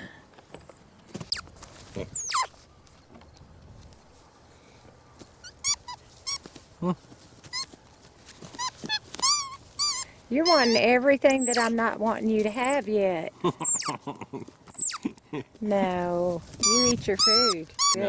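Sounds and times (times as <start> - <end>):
monkey squeaky chirps: 0.4 - 1.5, 2.1 - 2.5, 5.4 - 6.5, 7.5 - 7.7, 8.5 - 11.7, 12.4 - 12.8, 13.6 - 14.0, 14.6 - 15.0, 16.6 - 18.0
monkey falling squeal: 2.1 - 2.5, 7.4 - 7.8, 8.4 - 11.7, 12.4 - 12.8, 13.6 - 13.9, 14.6 - 15.0, 16.6 - 18.0.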